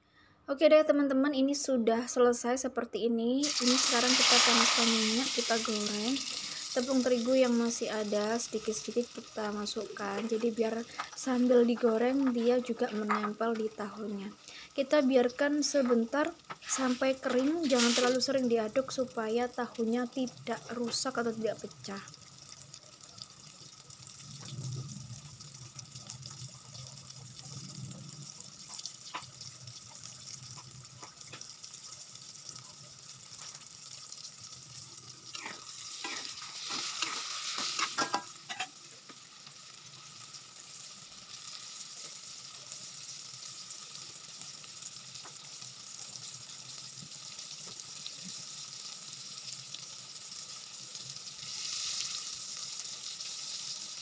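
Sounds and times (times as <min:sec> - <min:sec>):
tofu sizzling in oil: 0:03.4 - 0:54.0
spatula scraping wok: 0:16.4 - 0:18.2, 0:35.3 - 0:38.8.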